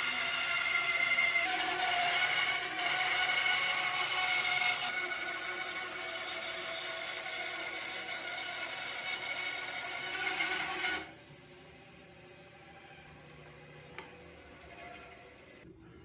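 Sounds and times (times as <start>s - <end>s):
electric saw cutting wood: 0.0s - 11.2s.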